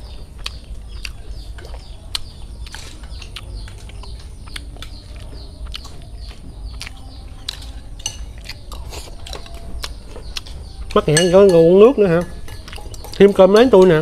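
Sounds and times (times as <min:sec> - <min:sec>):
small birds chirping: 0:00.0 - 0:14.0
spoons clinking against bowls: 0:06.9 - 0:14.0.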